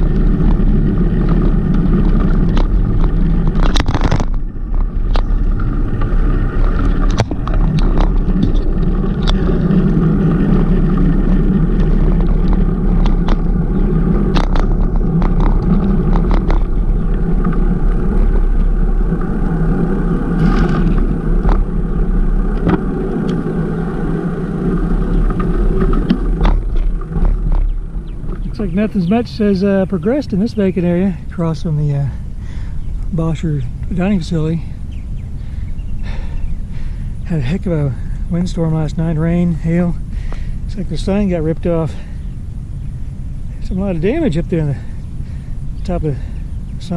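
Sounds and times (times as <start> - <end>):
bike clicks and rattles: 0.0 - 29.3
tyre noise: 0.0 - 42.4
bicycle rumbling on street: 0.0 - 46.9
wind on microphone: 0.0 - 46.9.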